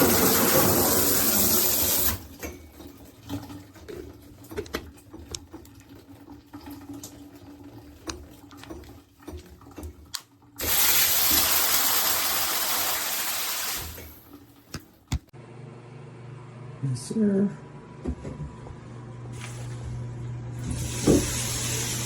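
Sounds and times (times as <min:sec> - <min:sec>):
shower head spraying water: 0:00.0 - 0:02.2, 0:10.6 - 0:14.2, 0:20.6 - 0:22.0.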